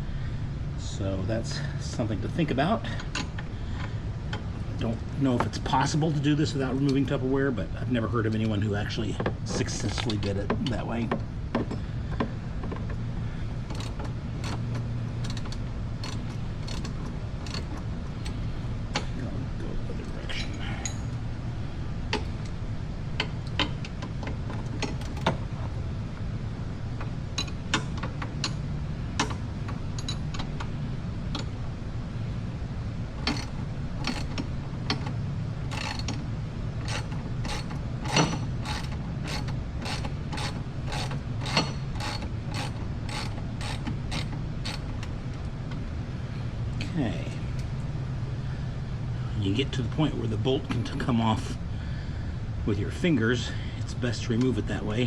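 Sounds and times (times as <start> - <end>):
ratchet wrench clicking: 13.7 - 18.4, 24.8 - 25.4, 33.2 - 35.1, 35.7 - 45.4.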